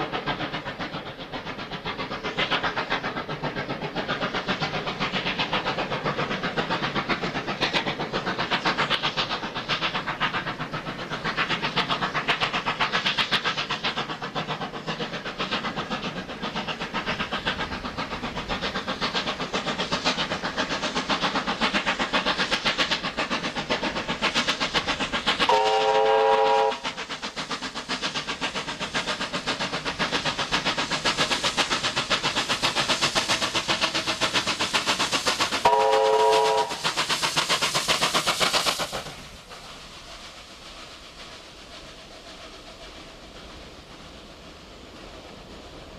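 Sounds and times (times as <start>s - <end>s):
steam locomotive chugging: 0.0s - 45.9s
steam whistle blast: 25.5s - 26.8s, 35.6s - 36.8s.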